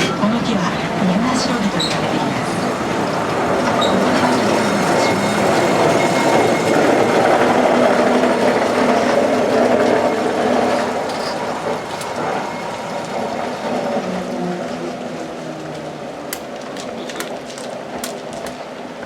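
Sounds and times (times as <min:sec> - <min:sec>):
train wheels and carriages rattling: 0:00.0 - 0:19.0.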